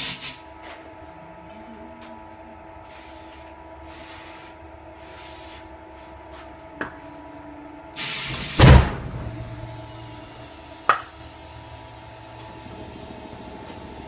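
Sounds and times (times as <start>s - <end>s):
loud rushing hiss: 8.0s - 14.0s
heavy low boom: 8.6s - 10.0s
aerosol spray hissing: 9.8s - 14.0s.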